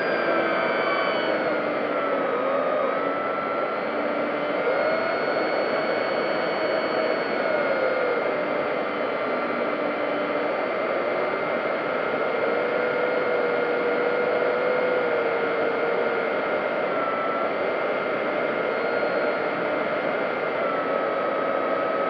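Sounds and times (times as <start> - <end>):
model plane motor whine: 0.0 - 22.0.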